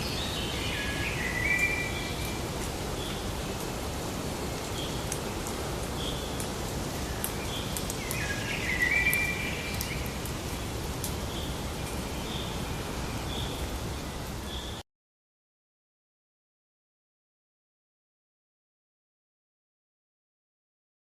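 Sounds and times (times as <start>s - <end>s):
background hiss: 0.0s - 14.8s.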